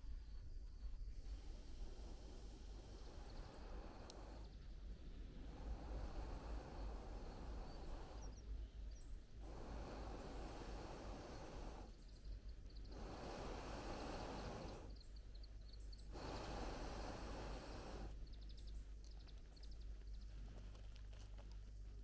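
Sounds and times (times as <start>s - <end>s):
dense rushing hiss: 0.0s - 18.4s
small birds chirping: 1.2s - 22.0s.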